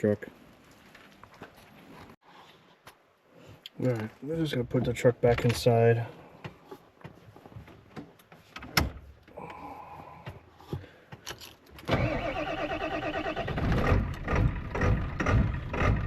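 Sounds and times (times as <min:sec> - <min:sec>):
diesel engine cranking and firing: 0:11.8 - 0:16.0.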